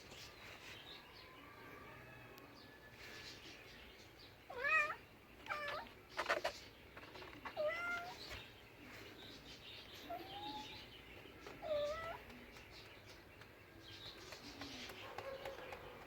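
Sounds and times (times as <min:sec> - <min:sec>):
cat meowing: 0:04.5 - 0:05.9, 0:07.6 - 0:08.2, 0:11.6 - 0:12.2.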